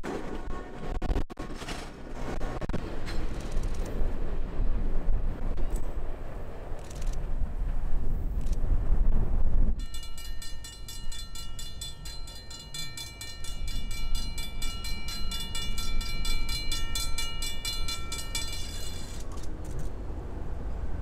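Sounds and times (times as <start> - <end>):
low train rumble: 0.0 - 21.0
high metallic ringing: 9.8 - 19.3.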